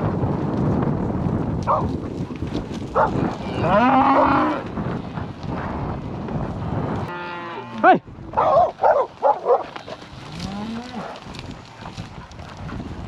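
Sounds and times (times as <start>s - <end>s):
cows mooing: 3.0s - 4.7s, 7.1s - 8.0s, 9.4s - 11.3s.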